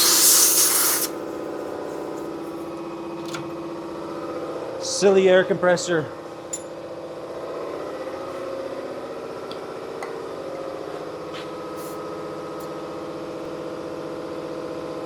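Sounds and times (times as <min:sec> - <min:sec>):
air compressor running: 0:00.0 - 0:02.8, 0:10.4 - 0:14.2.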